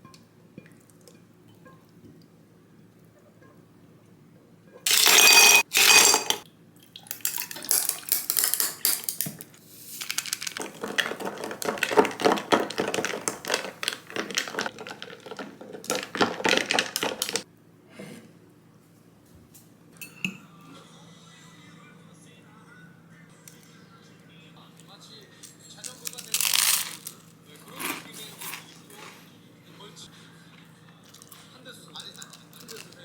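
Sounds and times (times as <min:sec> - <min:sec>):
dishes and utensils clattering: 0:04.8 - 0:06.4, 0:10.5 - 0:17.4.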